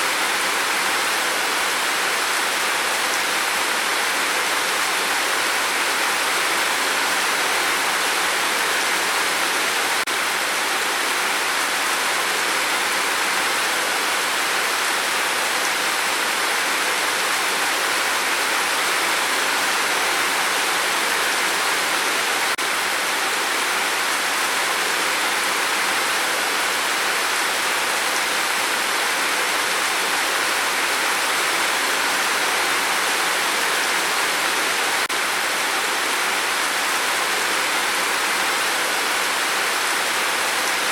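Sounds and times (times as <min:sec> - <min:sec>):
rain on a tin roof: 0:00.0 - 0:40.9.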